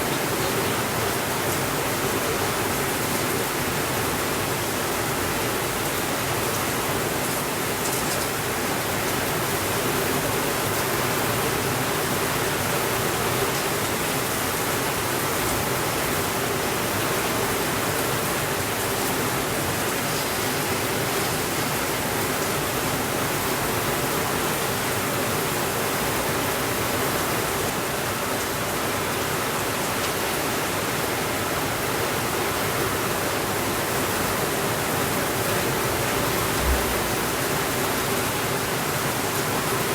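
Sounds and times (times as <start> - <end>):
rain hissing: 34.6 - 39.8.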